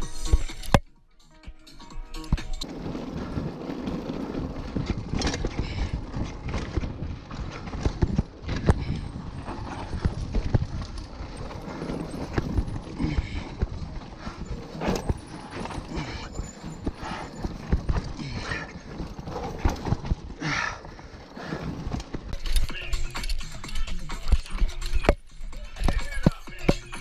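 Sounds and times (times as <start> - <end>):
mountain bike rattling over rocks: 2.1 - 27.0.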